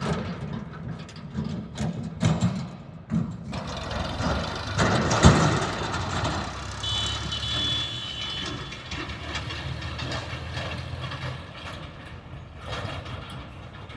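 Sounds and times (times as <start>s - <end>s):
vehicle engine running: 3.5s - 13.9s.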